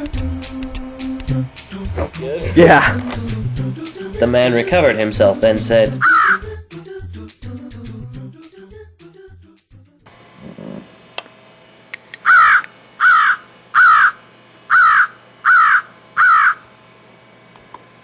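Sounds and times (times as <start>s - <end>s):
crow cawing: 6.0s - 6.4s, 12.2s - 16.7s.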